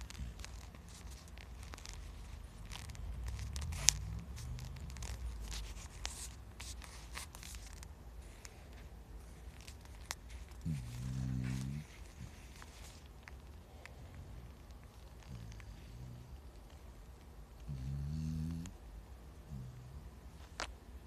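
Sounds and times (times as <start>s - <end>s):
paws scratching on bedding: 0.0s - 18.4s
puppy snoring breaths: 9.9s - 16.5s, 17.6s - 18.8s.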